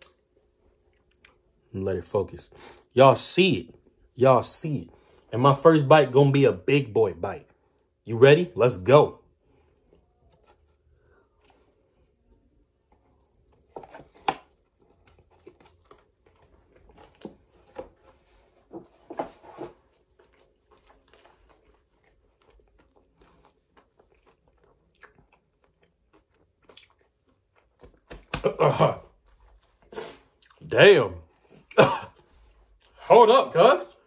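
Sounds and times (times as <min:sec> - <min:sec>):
person chewing crunchy food: 0:00.0 - 0:01.7, 0:09.3 - 0:18.6, 0:19.5 - 0:30.7.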